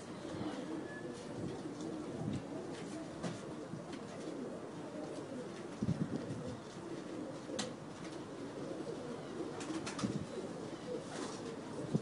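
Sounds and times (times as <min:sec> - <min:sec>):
birds calling: 0:06.5 - 0:11.9.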